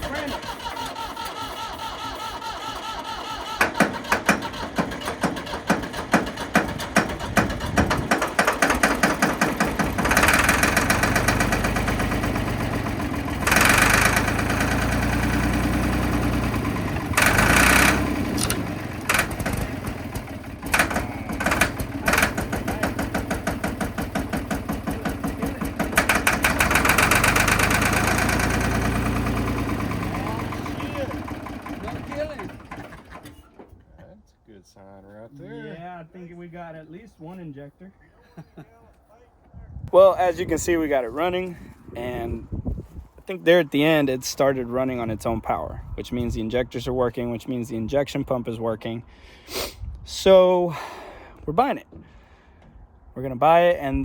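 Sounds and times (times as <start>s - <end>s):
diesel engine running roughly: 0.0s - 33.5s
diesel starter cranking: 0.0s - 33.8s.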